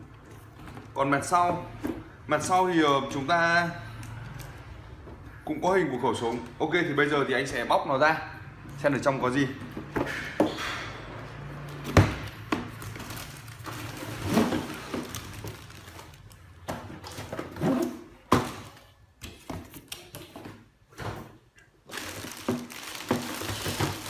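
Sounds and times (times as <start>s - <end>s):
plastic parts knocking: 21.9s - 24.0s.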